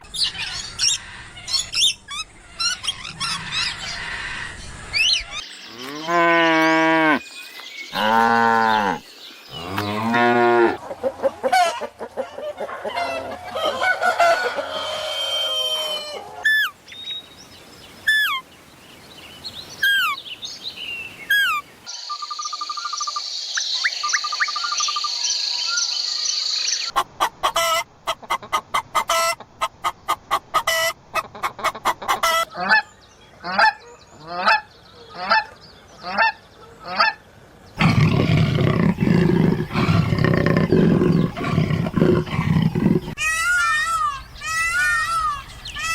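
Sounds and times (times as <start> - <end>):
cow mooing: 5.8 - 7.2, 8.0 - 9.0, 9.6 - 10.8, 37.8 - 43.2
fowl calls: 9.8 - 16.7, 26.9 - 37.2
bird chirps: 19.4 - 26.9.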